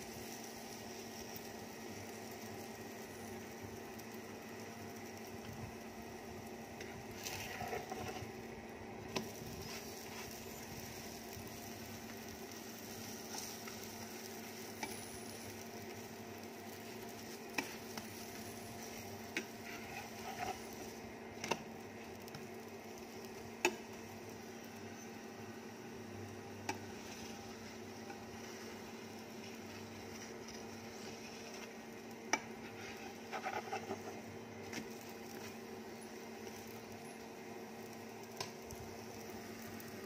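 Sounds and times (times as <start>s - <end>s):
flatbread sizzling in oil: 0.0s - 40.0s
steady low hum: 0.0s - 40.0s.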